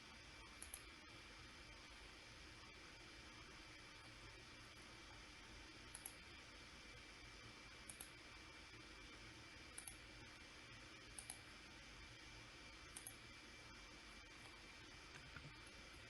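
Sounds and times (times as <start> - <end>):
faint steady hiss: 0.0 - 16.0
computer mouse clicks: 0.6 - 0.9, 5.9 - 6.2, 7.8 - 8.2, 9.7 - 10.0, 11.1 - 11.5, 12.9 - 13.2.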